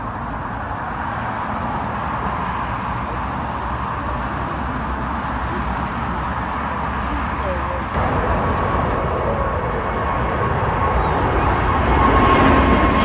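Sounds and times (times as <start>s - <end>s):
jet engines at takeoff power: 0.0s - 13.0s.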